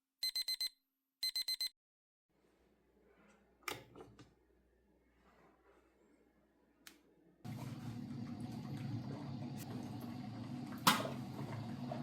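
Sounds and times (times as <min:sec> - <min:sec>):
electronic alarm beeping: 0:00.2 - 0:01.7.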